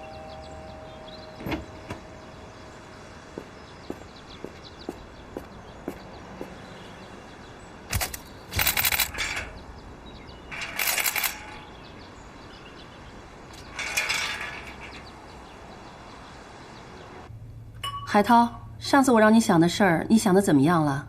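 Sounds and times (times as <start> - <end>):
sharp click: 7.9 - 9.2
clicking and clattering objects: 7.9 - 9.6, 10.5 - 11.8, 13.5 - 15.2.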